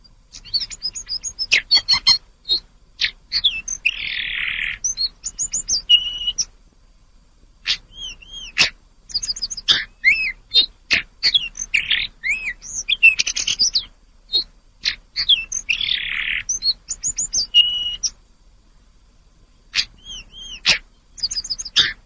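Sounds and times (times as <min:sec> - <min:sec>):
bird singing whistled notes: 0:00.0 - 0:06.5, 0:07.7 - 0:18.2, 0:19.7 - 0:22.0
sharp bird chips: 0:19.8 - 0:22.0.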